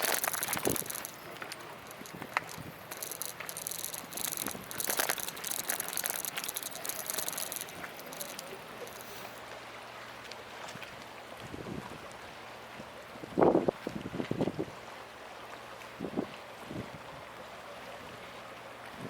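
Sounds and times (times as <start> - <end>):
pulsing insect buzzing: 0.0 - 9.4.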